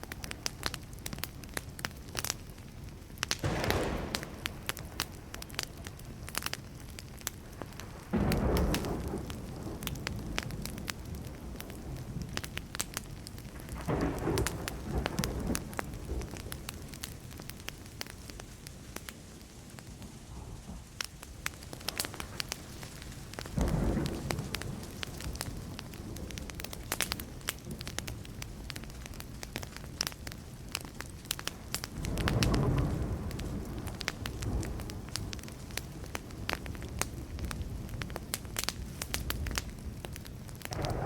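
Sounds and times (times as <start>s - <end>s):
wood fire crackling and popping: 0.0s - 41.0s
distant thunder rumbling: 3.4s - 6.4s, 7.3s - 17.8s, 20.0s - 28.4s, 31.9s - 38.3s, 40.6s - 41.0s.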